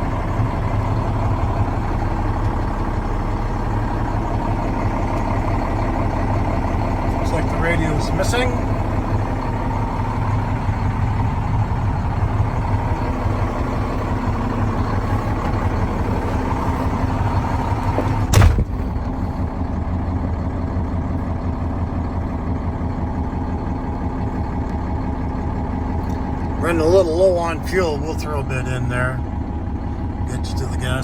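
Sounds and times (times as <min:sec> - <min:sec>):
truck engine idling: 0:00.0 - 0:31.0
sharp thump: 0:18.0 - 0:19.1.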